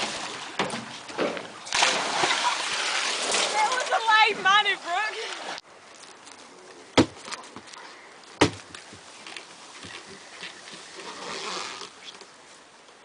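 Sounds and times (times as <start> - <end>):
faint background noise: 0.0 - 13.0
sharp knocks: 8.4 - 8.7.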